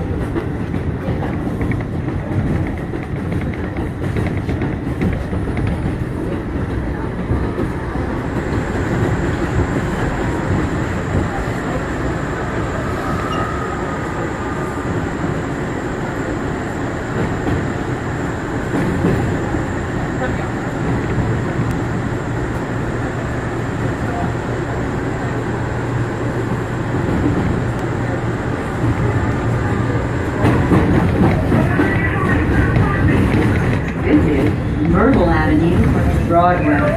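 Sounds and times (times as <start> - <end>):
subway wheels rumbling on rail: 0.0 - 36.9
wavering high tone: 13.0 - 14.4.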